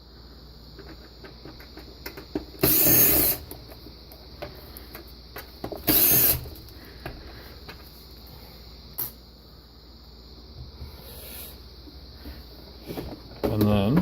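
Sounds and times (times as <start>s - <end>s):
cordless screwdriver running: 5.9s - 6.4s.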